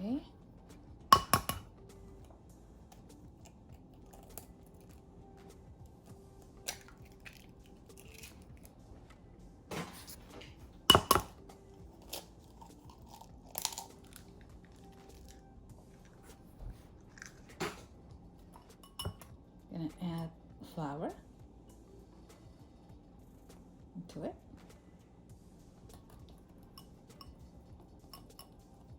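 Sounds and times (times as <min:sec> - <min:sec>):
bowls and utensils clattering: 0:01.1 - 0:01.7, 0:09.7 - 0:11.4, 0:16.2 - 0:19.3, 0:28.0 - 0:28.6.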